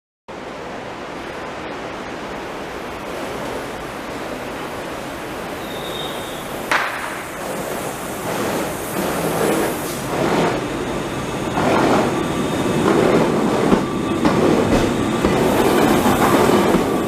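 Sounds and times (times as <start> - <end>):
train rushing noise: 0.3 - 17.0
high squeal: 5.5 - 6.7.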